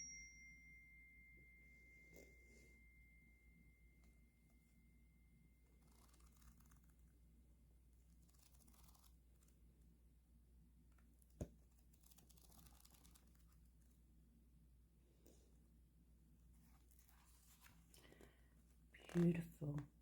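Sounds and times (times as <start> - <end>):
cards rustling: 11.2 - 13.8.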